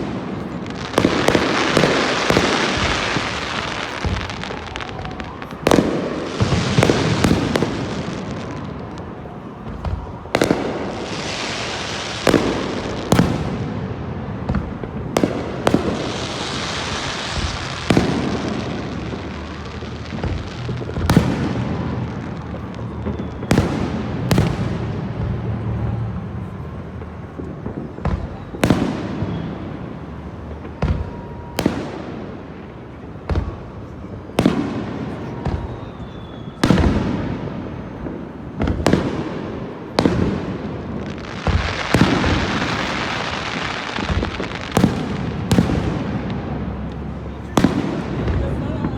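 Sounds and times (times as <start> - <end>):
fireworks bangs: 0.0 - 48.9
fireworks crackle and hiss: 0.0 - 48.9.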